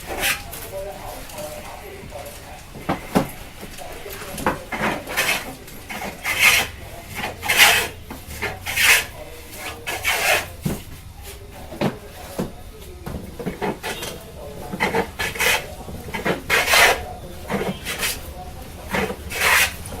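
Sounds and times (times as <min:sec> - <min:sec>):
hand tool scraping wood: 0:00.0 - 0:01.8, 0:04.2 - 0:10.8, 0:13.3 - 0:20.0.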